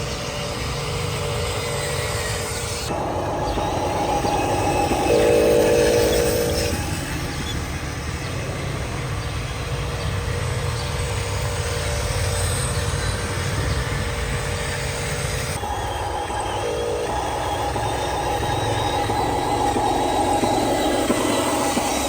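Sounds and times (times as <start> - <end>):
held several-toned note: 2.9 - 6.9.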